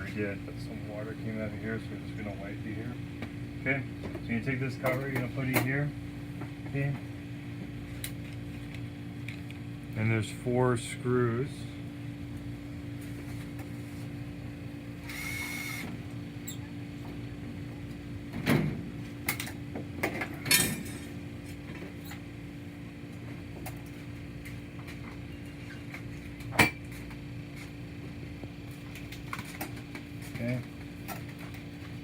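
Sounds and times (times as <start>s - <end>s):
steady low hum: 0.0s - 32.0s
cordless driver whirring: 15.0s - 16.6s.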